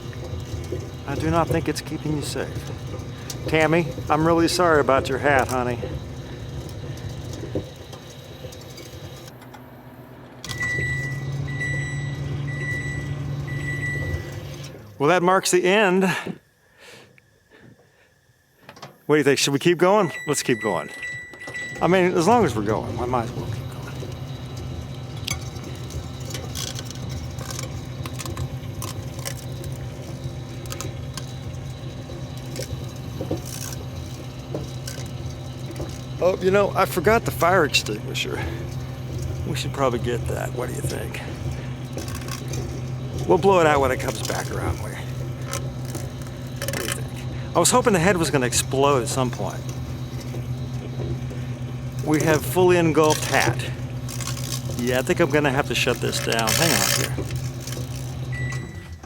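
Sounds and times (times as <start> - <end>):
microwave oven humming: 0.0 - 59.0
microwave beeps: 0.1 - 15.0, 19.6 - 59.0
crackling and snapping of arcing: 38.7 - 58.3.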